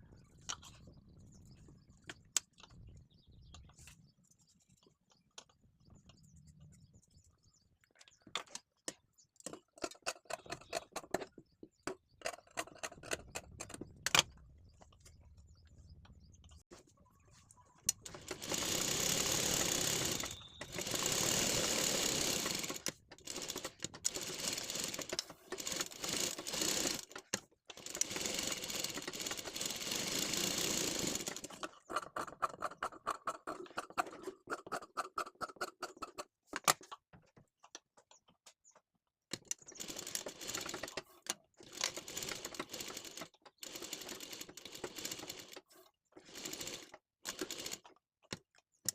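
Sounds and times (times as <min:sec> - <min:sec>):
sewing machine stitching: 0:17.9 - 0:36.2, 0:39.5 - 0:47.9.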